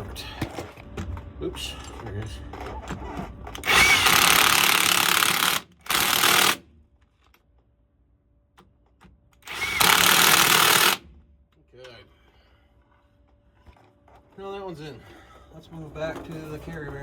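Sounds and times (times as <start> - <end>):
impact gun running bolts: 3.5 - 6.7, 9.0 - 11.2.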